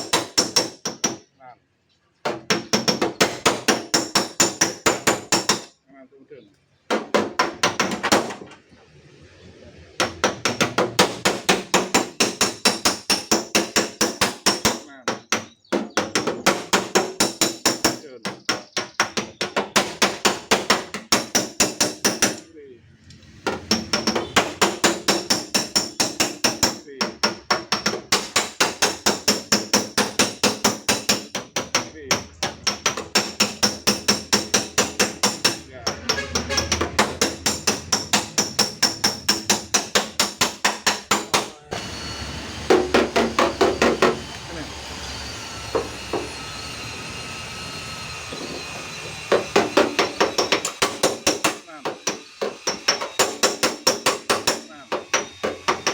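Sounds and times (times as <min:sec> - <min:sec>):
hammer striking sheet steel: 0:00.0 - 0:01.2, 0:02.5 - 0:05.7, 0:10.0 - 0:14.9, 0:19.5 - 0:22.5, 0:23.4 - 0:41.9, 0:42.7 - 0:44.3, 0:48.4 - 0:55.9.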